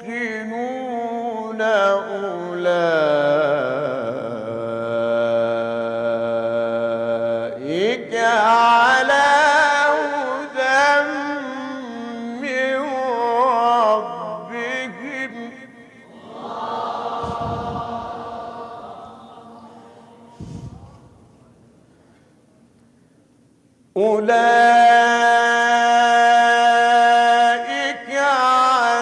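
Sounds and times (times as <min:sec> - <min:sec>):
man reciting melodically: 0:00.0 - 0:16.1, 0:23.8 - 0:29.0.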